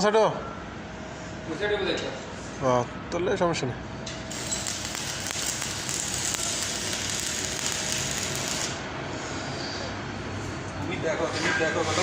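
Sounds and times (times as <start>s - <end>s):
arc welding hiss: 4.3s - 9.3s.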